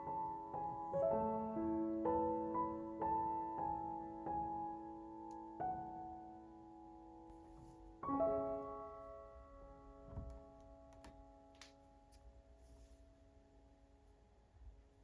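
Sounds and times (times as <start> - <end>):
soft piano chord: 0.0 - 12.8
faint clicks and taps: 10.1 - 12.3.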